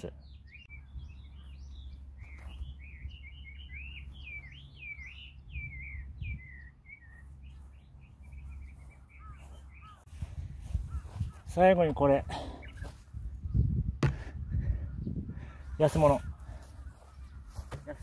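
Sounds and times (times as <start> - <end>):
songbird warbling: 0.2 - 10.1, 10.7 - 11.5.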